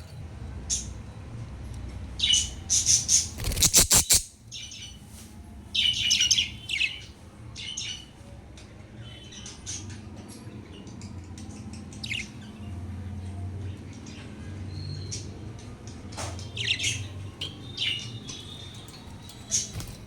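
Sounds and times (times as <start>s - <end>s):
budgerigars chirping and squawking: 2.2s - 5.0s, 5.8s - 8.1s, 9.1s - 12.6s, 16.2s - 20.0s.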